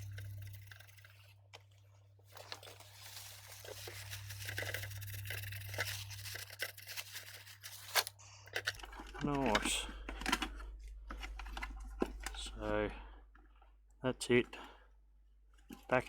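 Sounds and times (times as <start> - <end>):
scrubbing a circuit board: 0.0 - 1.4, 2.3 - 8.2.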